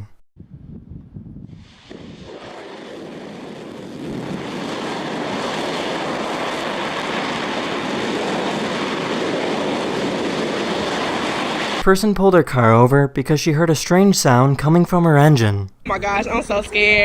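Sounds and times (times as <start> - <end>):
rocket engine roaring: 0.5 - 11.9.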